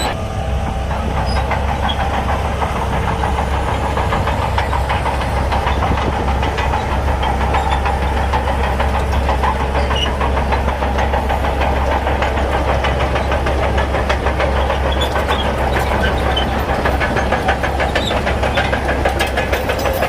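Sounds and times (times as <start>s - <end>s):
heavy diesel machinery rumbling: 0.0s - 20.0s
fast regular machine clatter: 0.9s - 20.0s.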